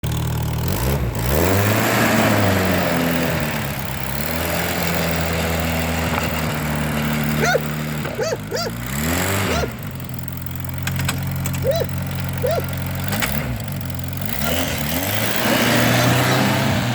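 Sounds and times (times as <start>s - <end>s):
car engine revving and idling: 0.0s - 16.9s.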